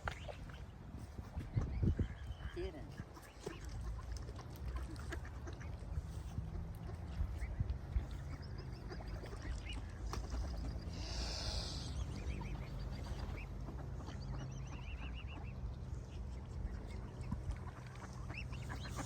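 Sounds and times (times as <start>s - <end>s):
steady low rumble: 3.9s - 19.0s
birds chirping: 5.6s - 19.0s.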